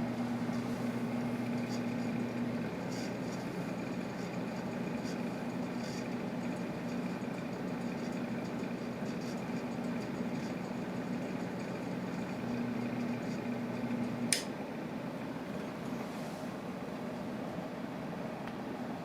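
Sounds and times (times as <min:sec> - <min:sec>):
ceiling fan motor humming: 0:00.0 - 0:19.0
sharp click: 0:14.3 - 0:14.5.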